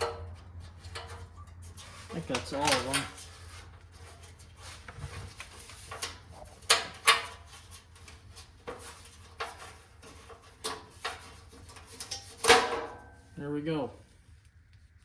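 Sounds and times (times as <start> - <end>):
metal knocks and clanks: 0.0 - 3.3.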